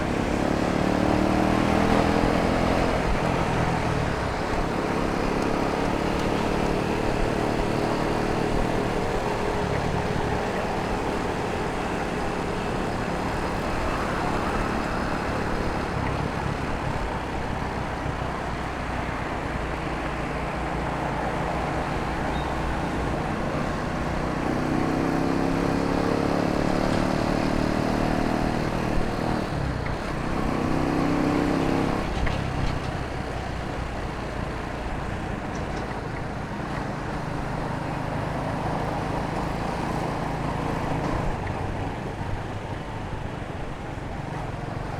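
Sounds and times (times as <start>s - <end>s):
city traffic: 0.0s - 44.9s
wind and road noise: 0.0s - 44.9s.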